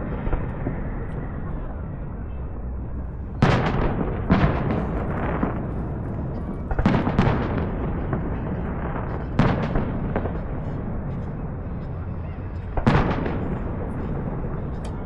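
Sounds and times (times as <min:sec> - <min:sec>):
fireworks bangs with crackle: 0:03.1 - 0:15.0.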